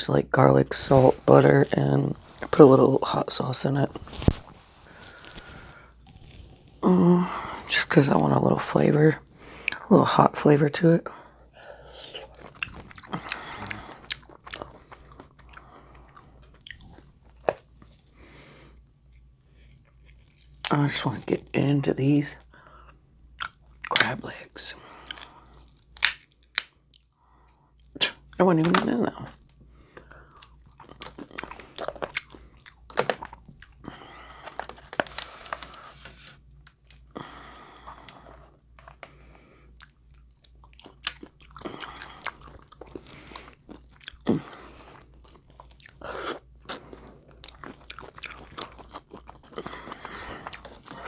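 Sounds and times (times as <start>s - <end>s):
biting and chewing: 4.0s - 6.8s, 12.0s - 18.1s, 30.3s - 35.8s, 39.8s - 51.0s
crab shells cracking: 25.1s - 27.1s.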